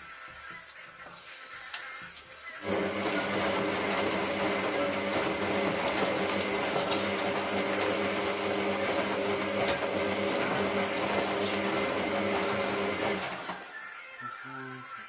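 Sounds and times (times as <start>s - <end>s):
washing machine motor whirring: 2.6s - 13.7s.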